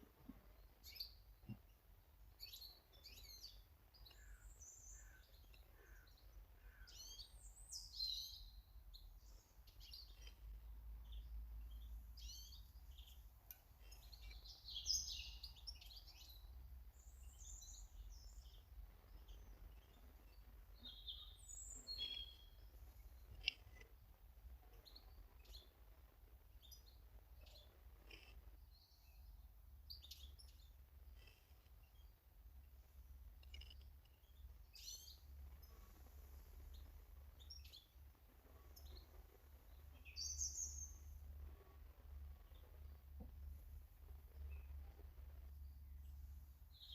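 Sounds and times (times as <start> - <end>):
birds chirping and singing: 2.3 - 23.9, 26.6 - 41.5.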